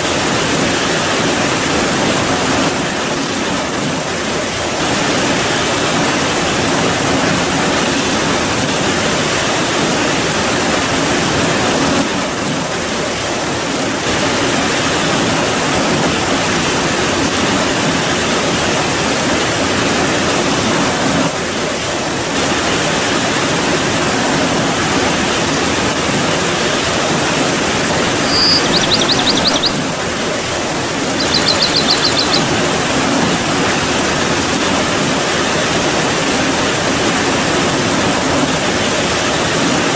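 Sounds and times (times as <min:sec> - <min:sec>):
high rapid chirping: 0:28.0 - 0:33.0.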